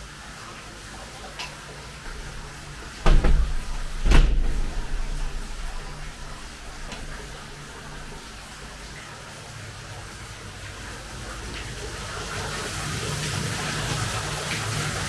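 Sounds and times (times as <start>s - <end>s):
loud thumps with deep rumble: 2.0s - 9.0s.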